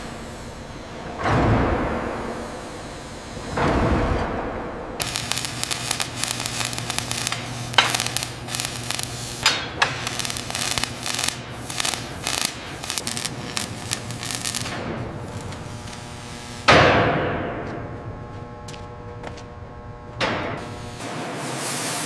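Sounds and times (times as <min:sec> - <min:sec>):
steady low hum: 0:00.0 - 0:21.1
dense crackling with snaps: 0:05.0 - 0:16.7.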